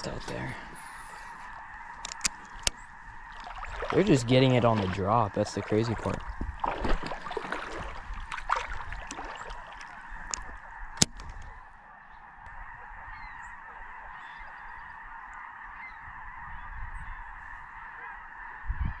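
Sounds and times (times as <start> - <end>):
chorus of bird calls: 0.0 - 19.0
sharp click: 10.3 - 11.5.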